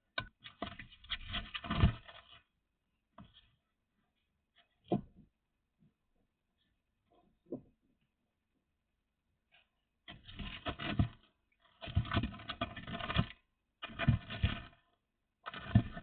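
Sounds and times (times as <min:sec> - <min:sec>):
scraping and scratching: 0:00.0 - 0:02.6, 0:09.5 - 0:16.0.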